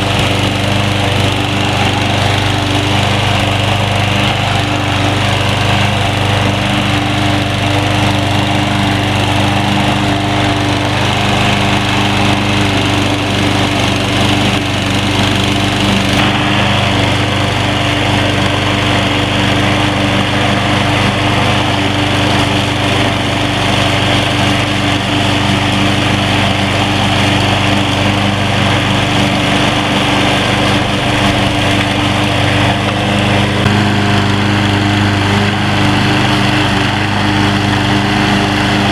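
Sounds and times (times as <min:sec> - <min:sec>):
lawn mower running: 0:00.0 - 0:38.9.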